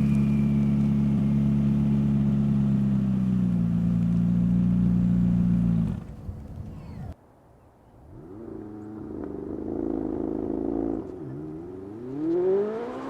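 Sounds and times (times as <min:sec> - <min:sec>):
sports car engine running: 0:00.0 - 0:07.1.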